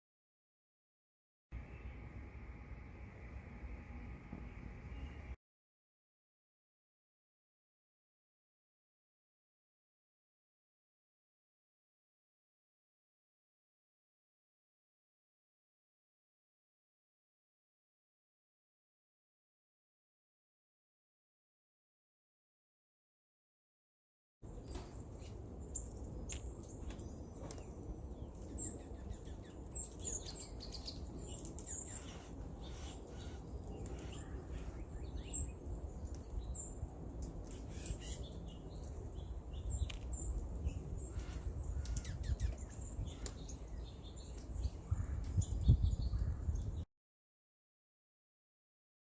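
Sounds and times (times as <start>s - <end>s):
small birds chirping: 24.5s - 46.9s.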